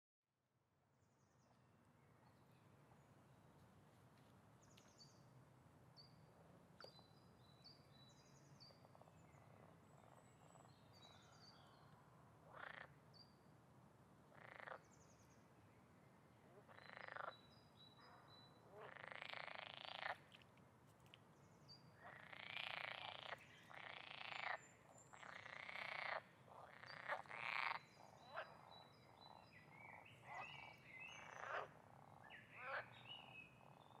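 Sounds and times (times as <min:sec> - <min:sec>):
frogs croaking: 0:12.4 - 0:13.0, 0:14.3 - 0:14.9, 0:16.6 - 0:17.4, 0:18.6 - 0:20.5, 0:22.0 - 0:34.0.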